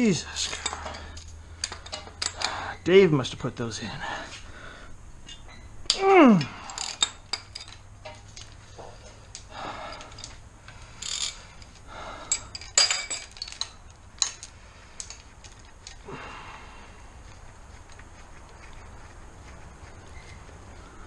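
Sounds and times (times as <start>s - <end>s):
metal tools clinking: 0.3s - 2.9s, 5.2s - 16.1s
scraping rustles: 17.1s - 21.0s.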